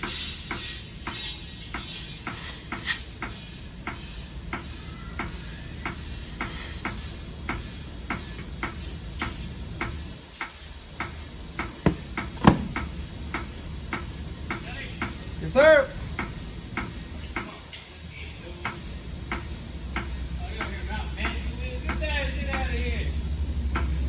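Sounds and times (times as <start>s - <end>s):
loud knocks: 11.6s - 13.0s.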